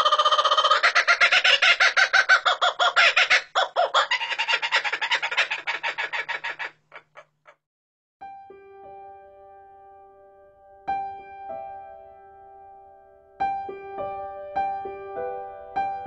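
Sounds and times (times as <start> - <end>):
bird calling harsh repeated notes: 0.0 - 7.6
soft piano music: 8.2 - 16.0.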